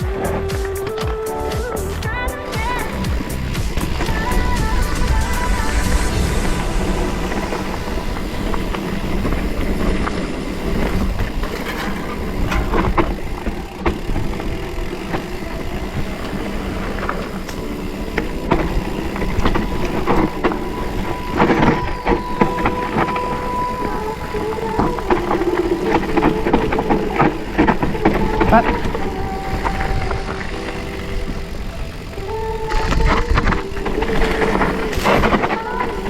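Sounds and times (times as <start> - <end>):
bicycle wind and tyre rumble: 0.0 - 36.0
bicycle rattling knocks: 2.6 - 5.6, 6.9 - 36.0.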